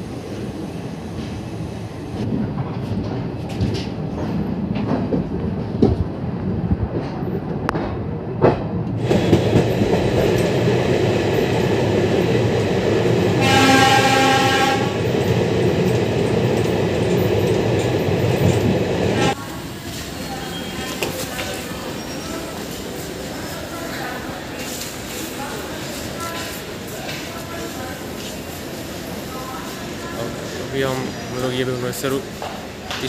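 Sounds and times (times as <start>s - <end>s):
train rushing noise: 0.0s - 33.0s
train horn: 13.4s - 15.0s.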